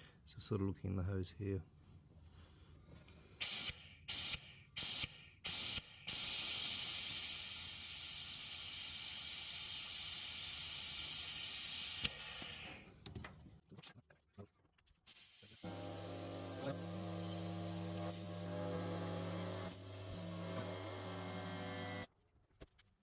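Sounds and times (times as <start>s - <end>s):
compressed air hissing: 3.4s - 12.9s, 15.1s - 22.1s.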